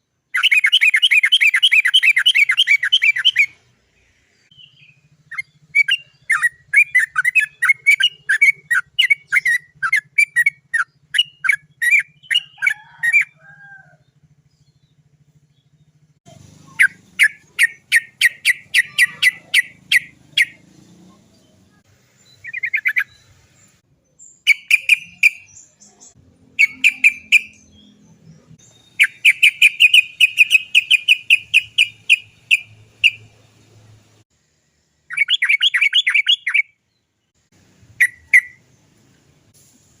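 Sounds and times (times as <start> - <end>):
bird calling in rapid sharp notes: 0.3 - 3.6, 4.5 - 14.0, 15.8 - 20.6, 24.4 - 25.6, 26.5 - 33.3, 35.1 - 36.7.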